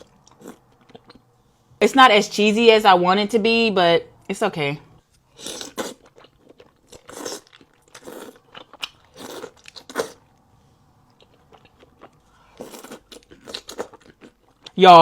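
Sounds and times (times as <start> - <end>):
wet chewing sounds: 0.0 - 1.3, 5.3 - 14.8.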